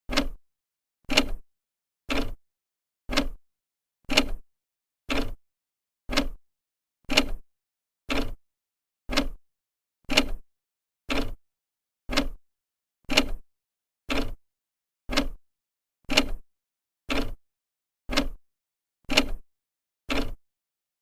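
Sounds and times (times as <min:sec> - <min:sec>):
clock ticking: 0:00.1 - 0:00.4, 0:02.1 - 0:02.4, 0:03.1 - 0:03.4, 0:05.1 - 0:05.4, 0:06.1 - 0:06.4, 0:07.1 - 0:07.4, 0:08.1 - 0:08.4, 0:09.1 - 0:09.4, 0:10.1 - 0:10.4, 0:11.1 - 0:11.4, 0:12.1 - 0:12.4, 0:13.1 - 0:13.4, 0:14.1 - 0:14.4, 0:15.1 - 0:15.4, 0:16.1 - 0:16.4, 0:17.1 - 0:17.4, 0:18.1 - 0:18.4, 0:19.1 - 0:19.4, 0:20.1 - 0:20.4.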